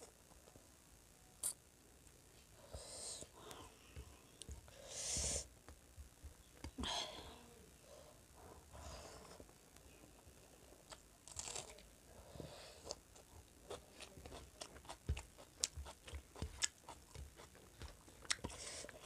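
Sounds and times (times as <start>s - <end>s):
person chewing food: 12.8s - 19.0s.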